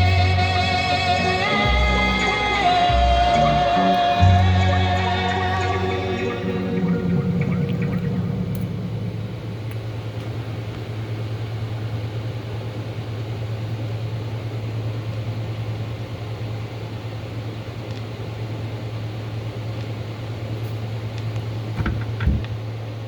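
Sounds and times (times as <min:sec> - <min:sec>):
music: 0:00.0 - 0:08.6
record player hum and hiss: 0:00.0 - 0:23.0.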